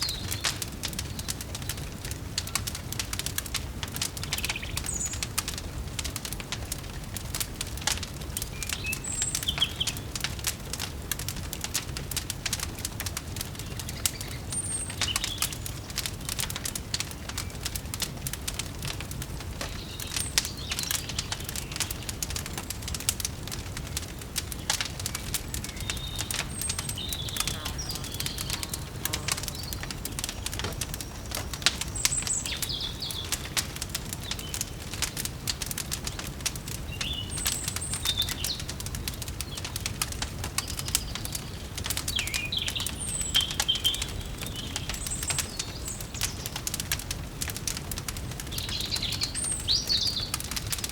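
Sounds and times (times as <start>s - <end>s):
wood fire crackling: 0.0s - 50.9s
high bird chirps: 25.7s - 31.3s.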